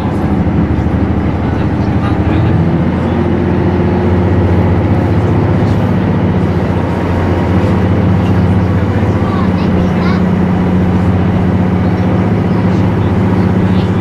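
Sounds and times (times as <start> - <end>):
motor hum: 0.0 - 14.0
train rumble: 0.0 - 14.0.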